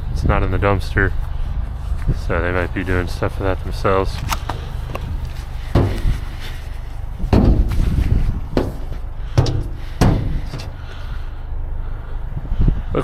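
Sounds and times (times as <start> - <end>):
steady low rumble: 0.0 - 13.0
heavy bangs on steel dumpster: 5.7 - 6.4, 7.2 - 10.9.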